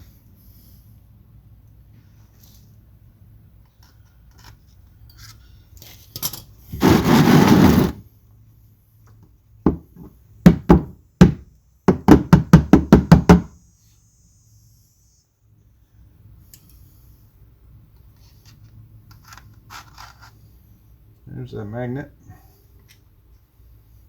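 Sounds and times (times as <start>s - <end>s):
rough rattling noise: 6.8s - 8.0s
sharp knocks: 9.7s - 13.5s.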